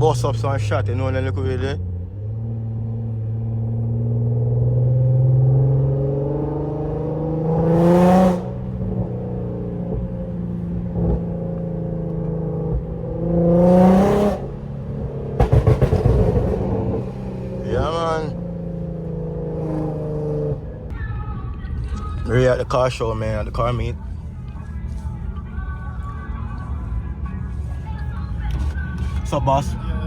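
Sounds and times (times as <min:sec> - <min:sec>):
car engine accelerating hard: 0:00.0 - 0:20.9.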